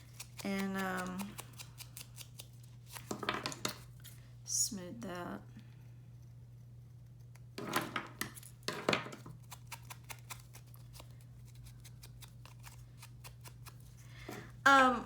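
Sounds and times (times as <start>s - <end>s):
scissors snipping paper: 0.0s - 3.1s, 9.3s - 14.0s.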